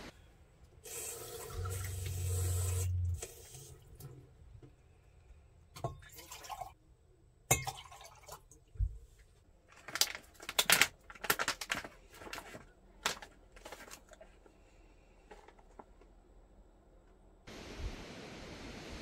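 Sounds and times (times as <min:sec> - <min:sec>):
scrapes and clicks of handling: 0:09.2 - 0:14.5.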